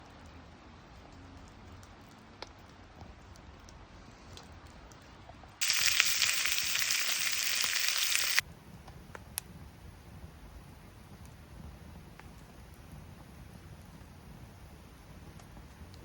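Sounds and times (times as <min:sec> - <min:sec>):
loud dense crackling hiss: 0:05.6 - 0:08.6
campfire crackling: 0:05.6 - 0:16.0.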